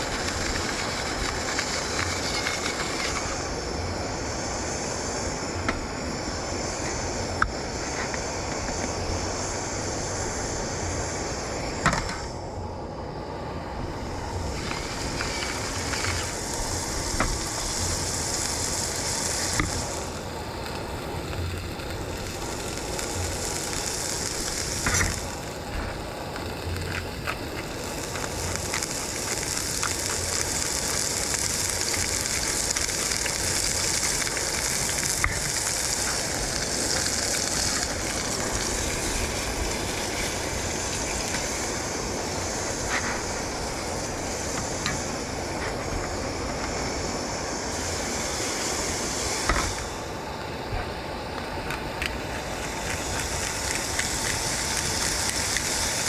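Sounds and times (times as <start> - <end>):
food sizzling in hot oil: 0.0 - 12.6, 13.8 - 56.0
oil popping: 14.1 - 41.6, 51.6 - 56.0.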